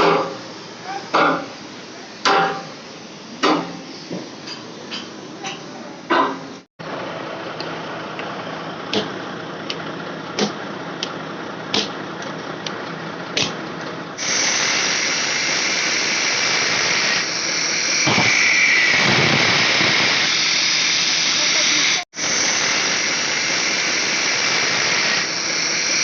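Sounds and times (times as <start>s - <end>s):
loud steady hiss: 14.2s - 26.0s.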